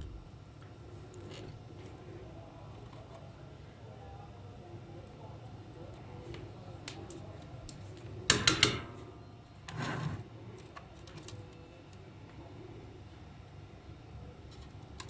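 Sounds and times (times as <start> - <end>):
short scraping rub: 9.7 - 10.3.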